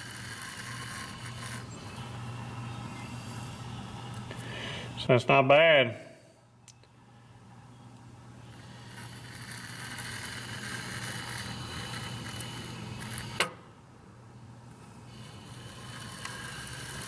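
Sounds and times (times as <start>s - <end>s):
electric motor humming: 0.0s - 3.9s, 8.4s - 13.5s, 15.0s - 17.0s.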